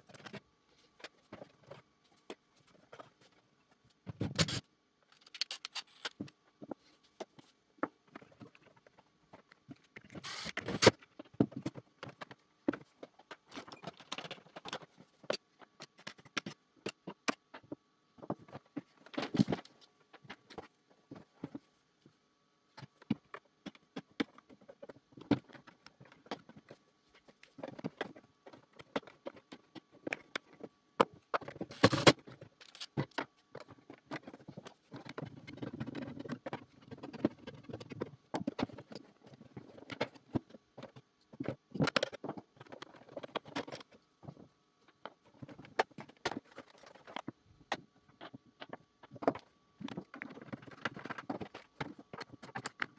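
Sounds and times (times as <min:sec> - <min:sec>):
plastic parts clicking and tapping: 0:04.2 - 0:06.4, 0:27.4 - 0:52.9
plastic parts clattering: 0:05.2 - 0:06.2, 0:10.2 - 0:10.9, 0:31.7 - 0:33.0.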